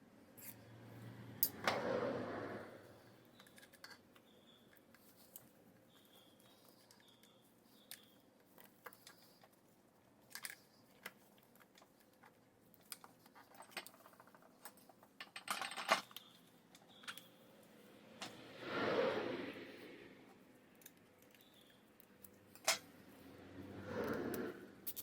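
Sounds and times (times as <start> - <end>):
small tools clicking and clinking: 0.4 - 0.6, 3.4 - 17.4, 20.7 - 22.9, 24.0 - 25.0
brief rushing noise: 1.5 - 3.2, 18.3 - 20.3.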